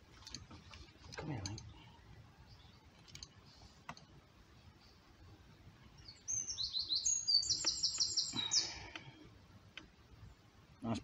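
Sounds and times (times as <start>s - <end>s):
faint clicks: 2.9s - 4.1s, 8.8s - 9.1s, 9.7s - 9.9s
songbird singing high notes: 6.0s - 8.8s.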